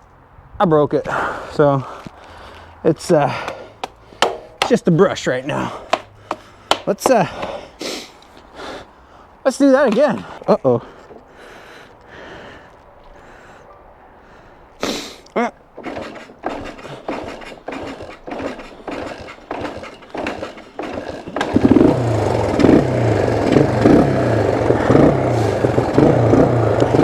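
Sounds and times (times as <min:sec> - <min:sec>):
short scuffing knocks: 0:03.2 - 0:07.6
motorcycle engine running: 0:15.9 - 0:27.0.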